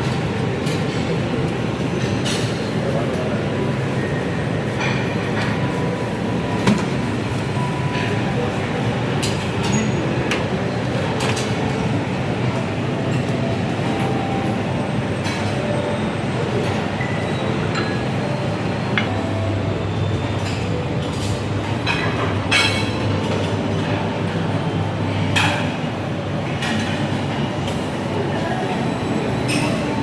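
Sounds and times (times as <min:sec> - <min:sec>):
crockery and cutlery clinking: 0:20.3 - 0:24.3.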